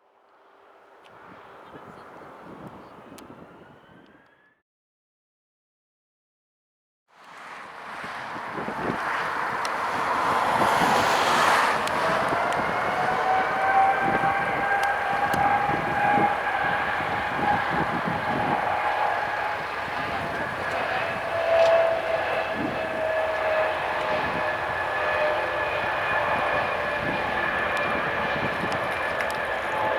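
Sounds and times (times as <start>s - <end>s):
jet engines whining: 8.0s - 29.9s.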